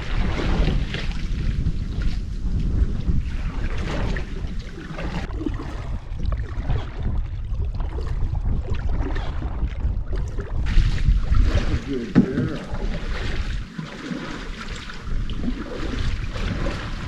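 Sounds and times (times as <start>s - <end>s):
paddle water splashing: 0.0s - 17.0s
wind buffeting microphone: 0.0s - 17.0s.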